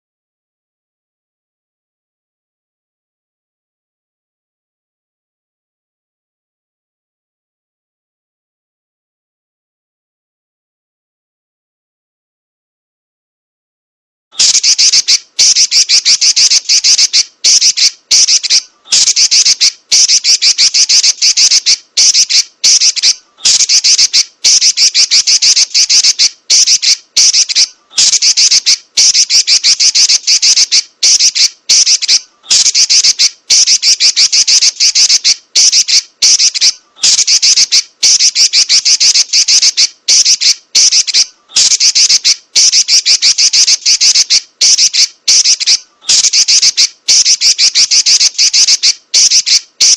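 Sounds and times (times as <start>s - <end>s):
bird rattling chatter and trills: 14.4s - 49.9s.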